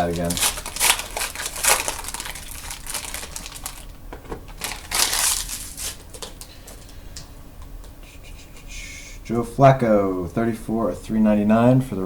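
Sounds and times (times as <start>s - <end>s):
plastic wrapper crinkling and tearing: 0.0s - 6.5s.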